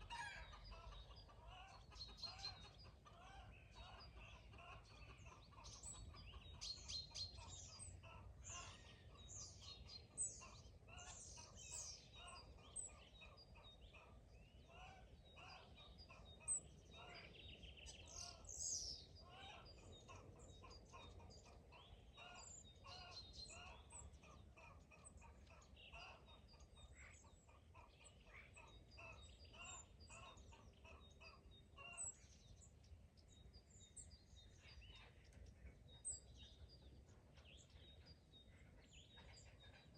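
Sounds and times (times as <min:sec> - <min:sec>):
chickens clucking: 0:00.0 - 0:06.6
songbirds chirping and trilling: 0:00.0 - 0:39.9.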